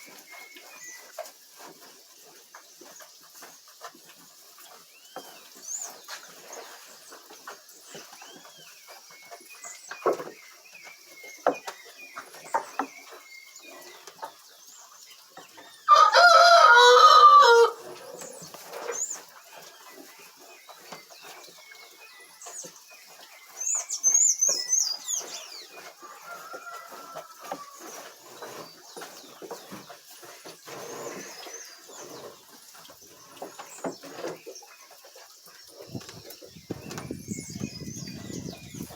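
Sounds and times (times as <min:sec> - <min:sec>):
rooster crowing: 0:15.9 - 0:17.8.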